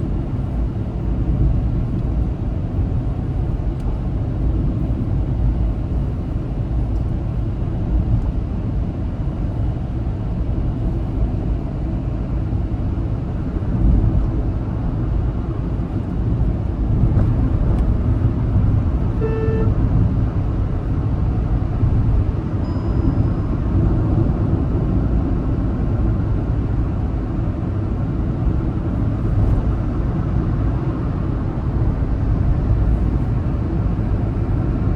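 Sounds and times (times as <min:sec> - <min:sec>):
car driving on highway: 0:00.0 - 0:34.9
car horn toot: 0:19.1 - 0:19.8.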